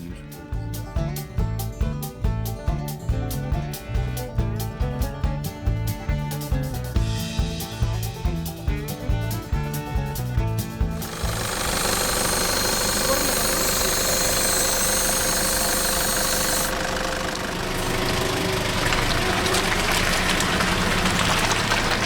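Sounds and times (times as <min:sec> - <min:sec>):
off-road vehicle engine running: 0:00.0 - 0:22.0
high hiss: 0:11.0 - 0:19.8.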